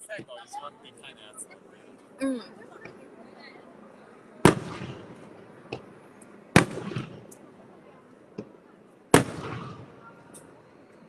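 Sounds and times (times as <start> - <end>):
faint firework pops: 4.4 - 7.5, 8.3 - 11.0
firework shells bursting: 4.4 - 7.5, 8.3 - 10.6.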